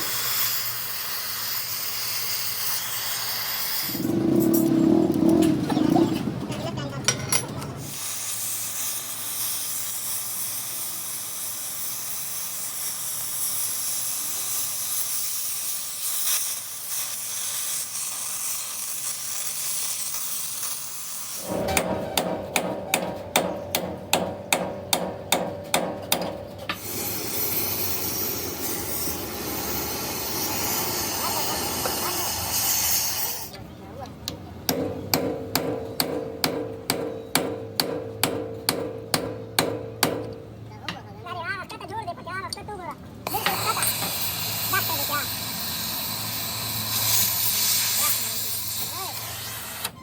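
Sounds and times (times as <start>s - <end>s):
steady hiss: 0.0s - 4.4s, 7.8s - 21.6s, 26.8s - 33.5s, 43.3s - 49.9s
hammer striking metal: 21.4s - 26.8s, 34.7s - 40.5s.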